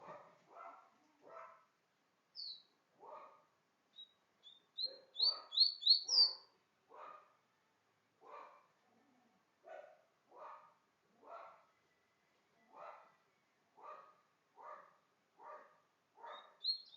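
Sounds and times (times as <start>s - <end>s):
dog barking: 0.0s - 1.7s, 3.0s - 3.5s, 4.8s - 7.4s, 8.2s - 8.8s, 9.6s - 11.7s, 12.7s - 13.2s, 13.8s - 16.7s
songbird whistling: 2.4s - 2.7s, 3.9s - 6.5s, 16.4s - 16.9s.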